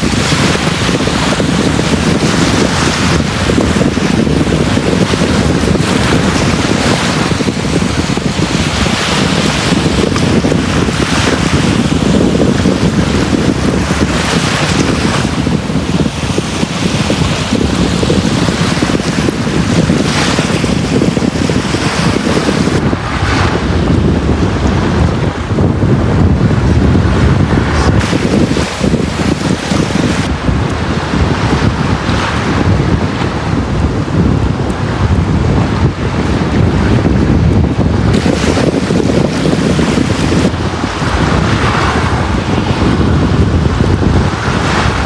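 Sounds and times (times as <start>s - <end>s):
sea waves washing onto beach: 0.0s - 23.8s, 28.0s - 31.0s, 38.0s - 43.1s.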